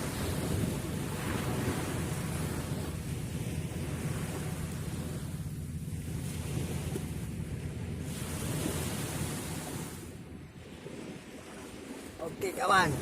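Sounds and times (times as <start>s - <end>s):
sea surf: 0.0s - 13.0s
wind rumbling on microphone: 0.0s - 13.0s.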